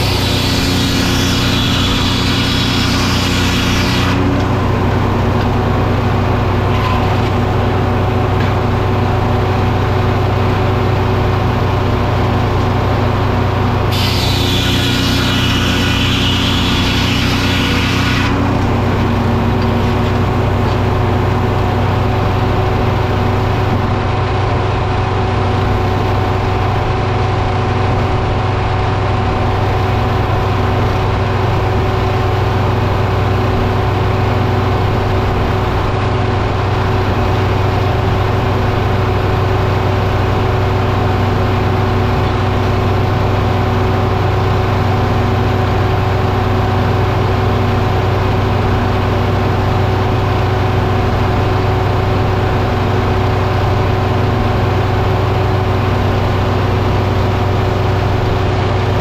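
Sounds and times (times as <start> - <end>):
engine running steadily: 0.0 - 59.0
loud hiss: 13.9 - 18.1.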